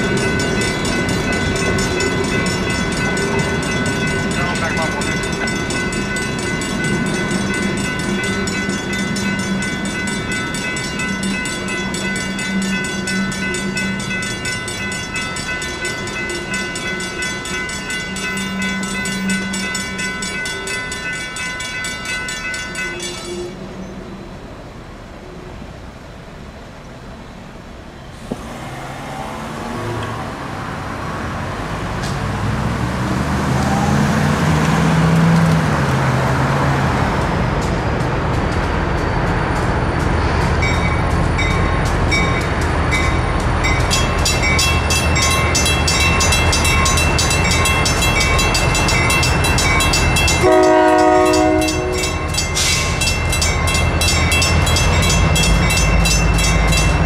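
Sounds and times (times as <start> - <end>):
crossing bell ringing: 0.0 - 24.0, 36.2 - 57.0
freight train rumbling past: 0.0 - 57.0
train horn blast: 50.3 - 52.4.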